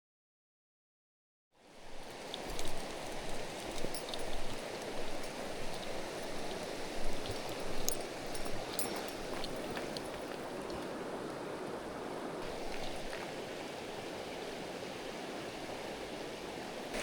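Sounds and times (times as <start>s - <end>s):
stream rushing over rocks: 1.7s - 17.0s.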